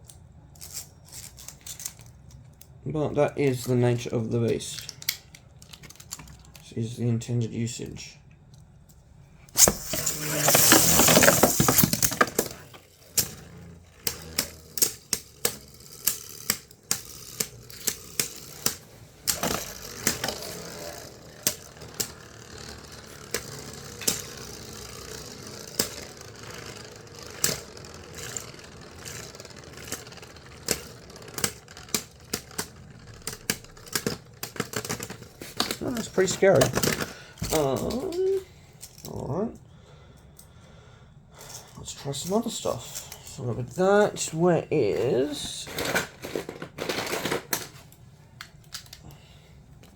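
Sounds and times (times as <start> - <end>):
scraping whir of spinning tops: 9.5 - 38.6
spinning tops clicking together: 9.5 - 39.0.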